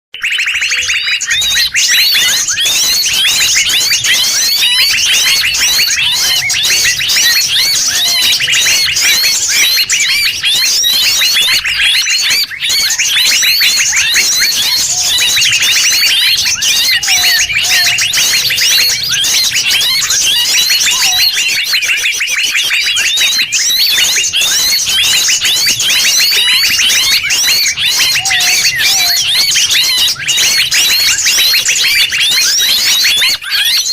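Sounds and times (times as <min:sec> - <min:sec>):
low whistled bird notes: 0:00.2 - 0:33.9
songbirds chirping and trilling: 0:00.2 - 0:33.9.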